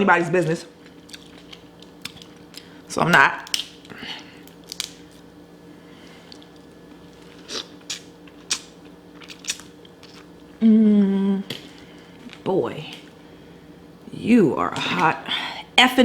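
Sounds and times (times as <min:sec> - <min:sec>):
chewing: 0:00.8 - 0:02.8, 0:06.1 - 0:10.5
crab shells crunching: 0:00.8 - 0:05.4, 0:06.1 - 0:10.4
person humming: 0:10.6 - 0:11.5.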